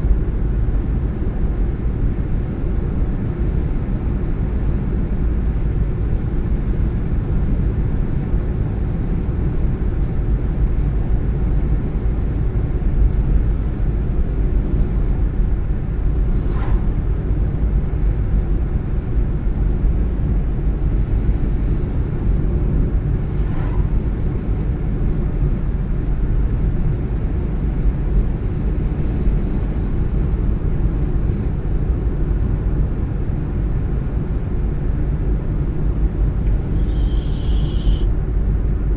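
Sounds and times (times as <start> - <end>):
car tyres and engine rumbling: 9.9 - 28.6, 32.5 - 38.9.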